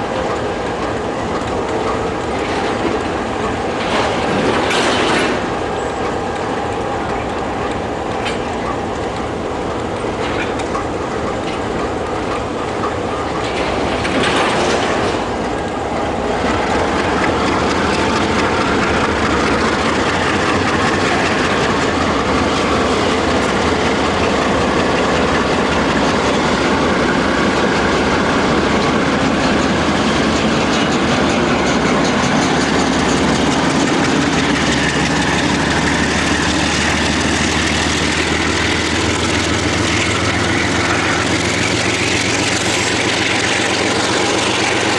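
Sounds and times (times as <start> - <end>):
diesel locomotive engine running: 0.0 - 44.9
train wheels on track: 0.0 - 44.9.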